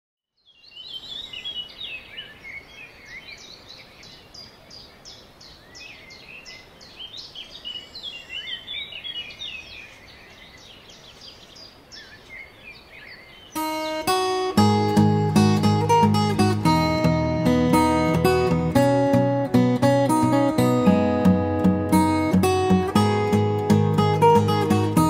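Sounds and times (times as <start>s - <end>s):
birds chirping and whistling: 0.5s - 14.3s.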